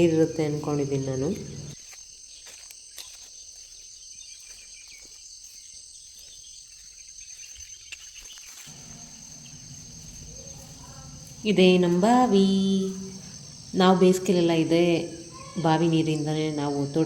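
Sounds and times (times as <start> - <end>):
insects chirping chorus: 0.0 - 17.0
low rumble: 8.7 - 15.4.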